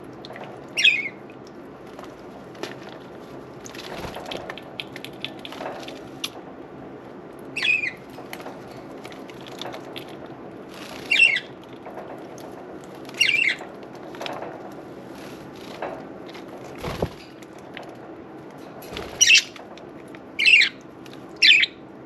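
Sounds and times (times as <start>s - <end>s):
light clicks and patter: 0.0s - 6.5s, 7.3s - 21.4s
budgerigars chirping: 0.8s - 1.2s, 7.6s - 8.0s, 11.1s - 11.5s, 13.2s - 13.6s, 19.2s - 19.5s, 20.4s - 20.8s, 21.4s - 21.8s.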